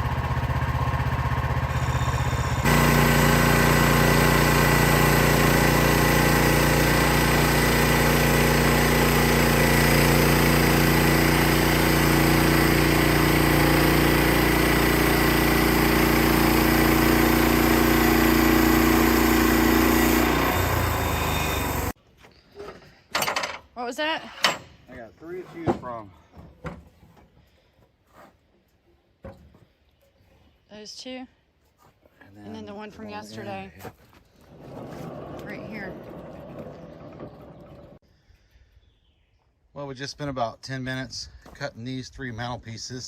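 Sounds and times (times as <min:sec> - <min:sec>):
sawmill gas engine running: 0:00.0 - 0:22.0, 0:33.4 - 0:38.0.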